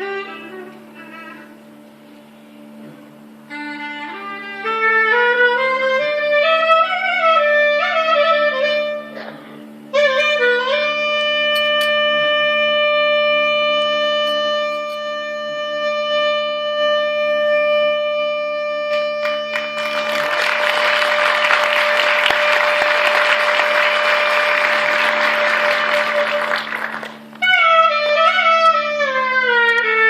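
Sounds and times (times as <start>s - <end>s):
woodwind melody: 0.0s - 30.0s
applause: 19.2s - 27.4s.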